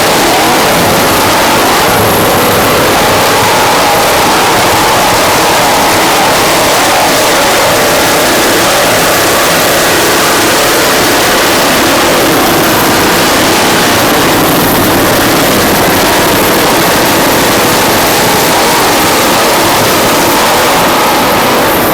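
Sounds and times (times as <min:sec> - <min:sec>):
powerboat engines running: 0:00.0 - 0:21.9.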